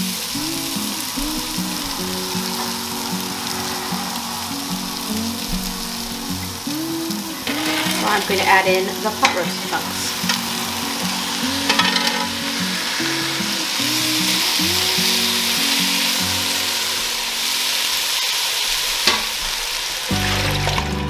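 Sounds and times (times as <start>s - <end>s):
meat and vegetables sizzling: 0.0s - 21.0s
spatula scraping and stirring: 7.4s - 12.5s.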